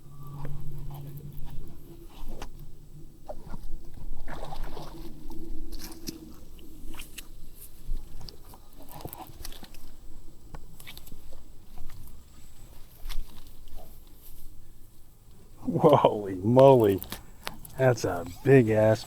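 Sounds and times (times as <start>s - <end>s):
faint steady hum: 0.0s - 19.0s
fishing gear clicking and rattling: 15.6s - 19.0s.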